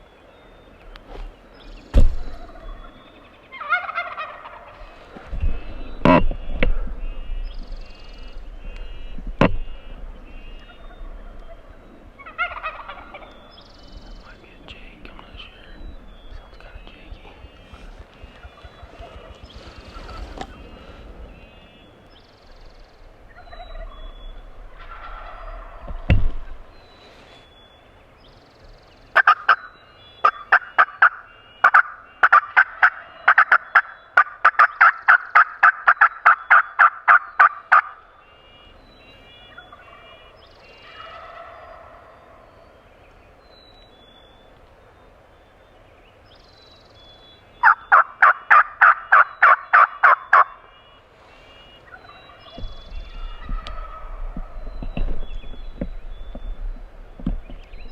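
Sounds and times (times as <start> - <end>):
small birds chirping: 0.0 - 57.9
turkeys gobbling: 1.9 - 6.8, 9.7 - 14.2, 15.3 - 21.8, 23.3 - 27.4, 29.1 - 38.1, 39.2 - 42.7, 47.6 - 56.4.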